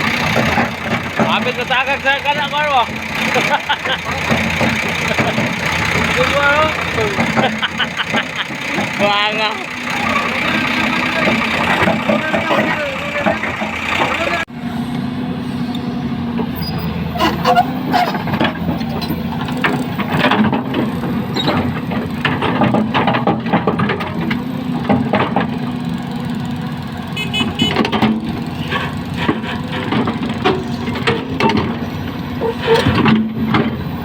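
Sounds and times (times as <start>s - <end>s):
diesel engine idling: 0.0s - 34.0s
metallic clanks and knocks: 0.2s - 14.4s, 17.2s - 25.8s, 27.6s - 33.9s.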